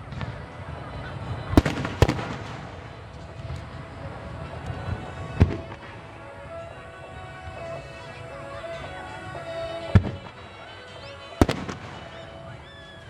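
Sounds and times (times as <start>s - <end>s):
firework crackling: 0.0s - 13.0s
music: 0.0s - 13.0s
firework shells booming: 1.5s - 3.9s, 11.4s - 12.5s.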